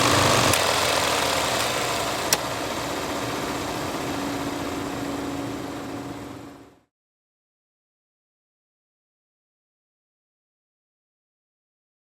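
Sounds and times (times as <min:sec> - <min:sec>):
film projector whirring: 0:00.0 - 0:06.8.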